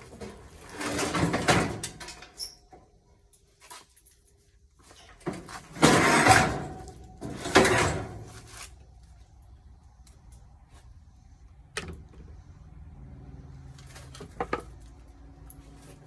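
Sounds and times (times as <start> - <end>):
metal parts scraping and rattling: 0.0 - 2.7, 3.3 - 8.8.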